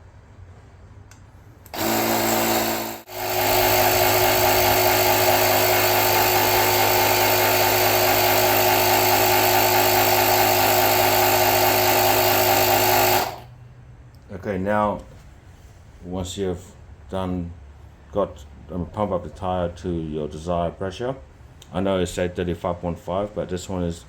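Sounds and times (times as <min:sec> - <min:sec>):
electric tyre inflator running: 0:01.7 - 0:13.5.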